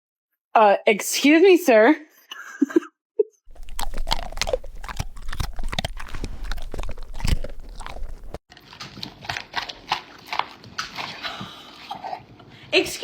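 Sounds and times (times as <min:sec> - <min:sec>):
low background hum: 0:03.5 - 0:08.4
dog crunching food: 0:03.5 - 0:10.6.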